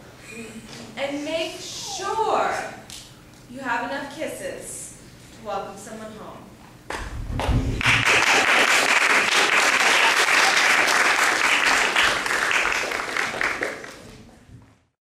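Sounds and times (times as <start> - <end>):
audience applauding: 7.8 - 14.2.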